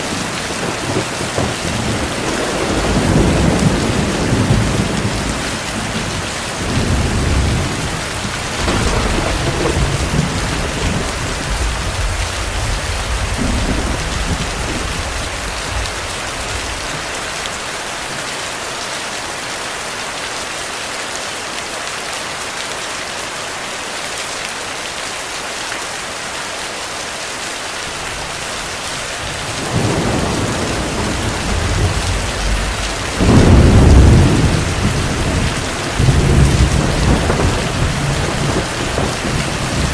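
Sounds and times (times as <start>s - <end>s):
heavy rain: 0.0s - 39.9s
rolling thunder: 0.4s - 16.9s, 29.2s - 39.9s.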